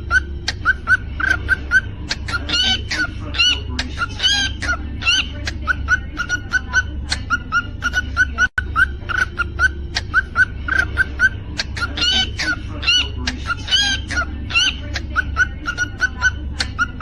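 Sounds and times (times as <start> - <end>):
cockatiel whistled notes: 0.0 - 1.9, 7.3 - 11.4
cockatiel chirping: 0.0 - 17.0
steady low hum: 0.0 - 17.0.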